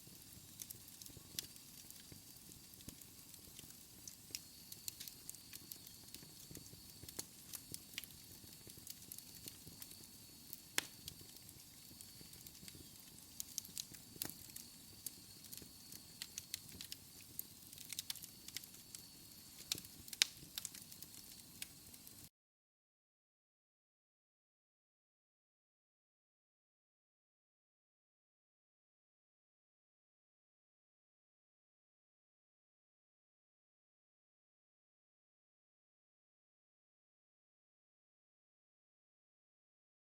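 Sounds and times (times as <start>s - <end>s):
wood fire crackling and popping: 0.0s - 22.3s.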